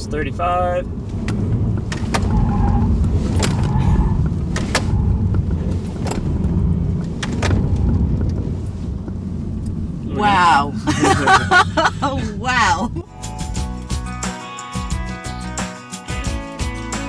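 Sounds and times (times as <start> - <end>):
car engine rumble: 0.0 - 14.2
tyres on the road: 0.0 - 15.6
sharp clicks and knocks: 4.5 - 8.4.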